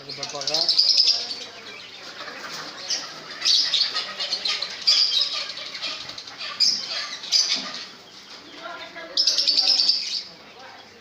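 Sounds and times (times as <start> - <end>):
cage birds chirping: 0.0 - 11.0
parrots squawking: 0.3 - 8.0.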